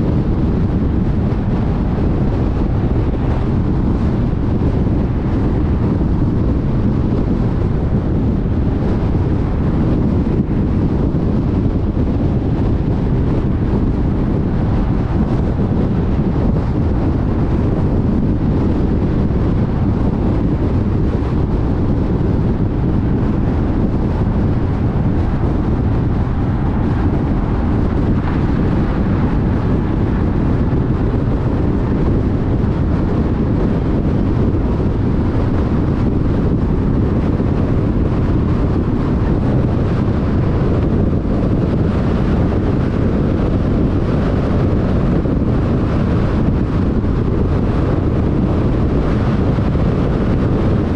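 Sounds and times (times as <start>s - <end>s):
car road noise on freeway: 0.0s - 50.9s.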